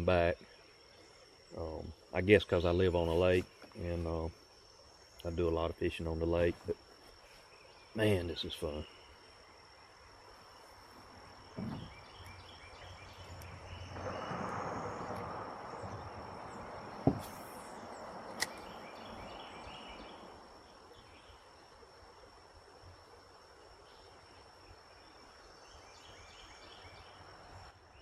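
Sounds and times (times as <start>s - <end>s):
insects trilling: 0.0s - 28.0s
sharp knocks and clicks: 11.6s - 11.9s.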